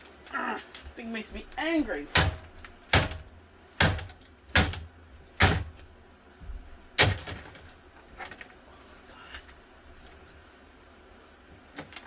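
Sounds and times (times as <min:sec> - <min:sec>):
plastic fan parts banging: 0:07.0 - 0:08.6.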